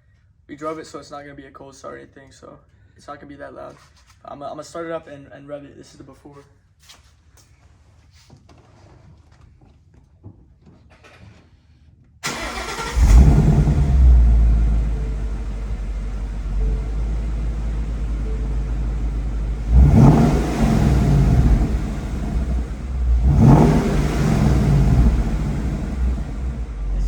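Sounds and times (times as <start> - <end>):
car engine starting and idling: 12.2 - 27.0
engine revving: 12.3 - 27.0.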